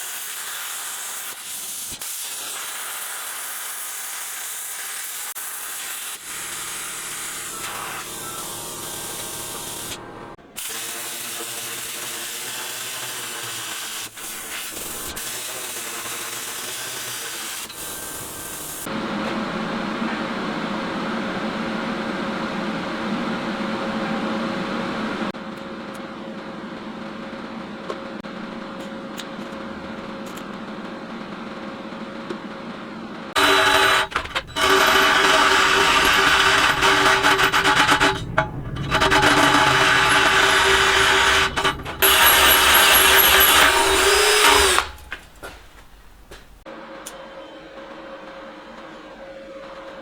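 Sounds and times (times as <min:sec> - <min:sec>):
steady mechanical noise: 0:06.0 - 0:10.6, 0:32.2 - 0:46.9.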